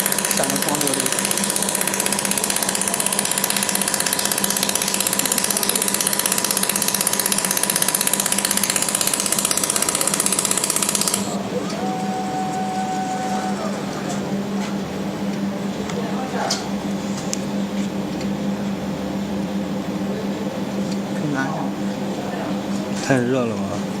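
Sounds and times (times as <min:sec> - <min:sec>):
laser welder pulsing crackle: 0:00.0 - 0:11.8.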